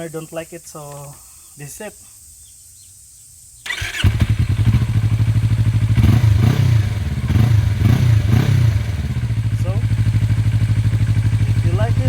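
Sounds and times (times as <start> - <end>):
motorcycle starter cranking: 3.6 - 6.2
motorcycle engine idling with blips: 3.7 - 12.0.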